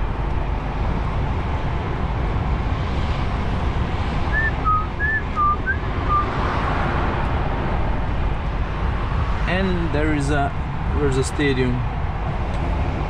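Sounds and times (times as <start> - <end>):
truck engine and road rumble: 0.0 - 13.0
person whistling notes: 4.3 - 6.3.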